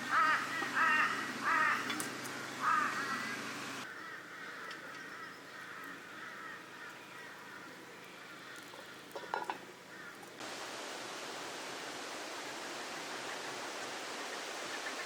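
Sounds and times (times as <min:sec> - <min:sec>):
birds chirping: 0:00.0 - 0:09.2.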